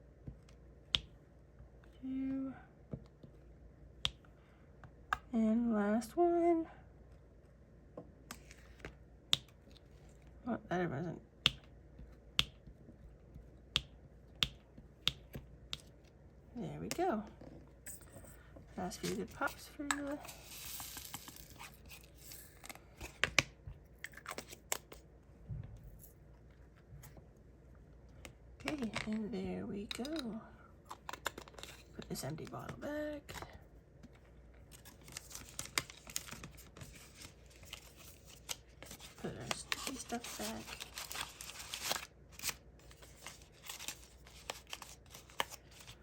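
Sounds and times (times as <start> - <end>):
small items clicking and tapping: 13.7 - 16.0, 19.0 - 25.0.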